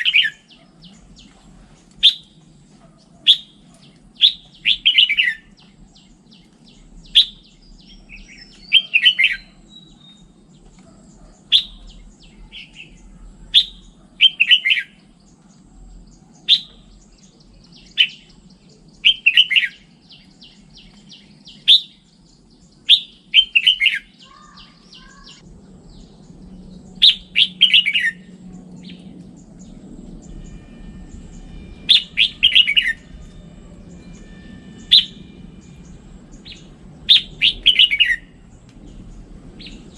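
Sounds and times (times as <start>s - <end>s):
bird singing chirpy phrases: 0.0s - 39.9s.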